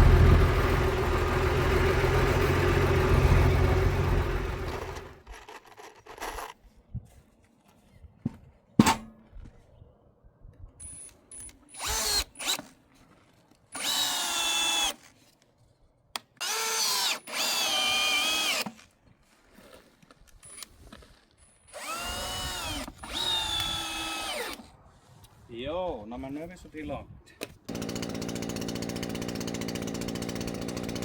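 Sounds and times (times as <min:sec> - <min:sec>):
power drill whining: 0:00.0 - 0:05.3, 0:10.9 - 0:12.7, 0:13.8 - 0:15.0, 0:16.4 - 0:18.8, 0:21.7 - 0:24.7, 0:27.7 - 0:31.0.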